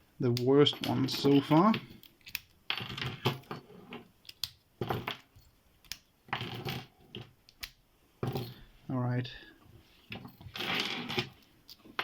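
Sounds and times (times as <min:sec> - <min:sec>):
padlocks clinking and clicking: 0:00.3 - 0:03.6, 0:04.2 - 0:07.8.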